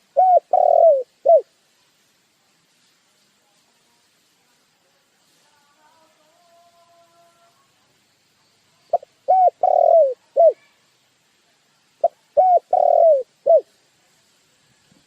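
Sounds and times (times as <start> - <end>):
dove cooing: 0.0 - 1.5, 8.9 - 10.6, 12.0 - 13.7.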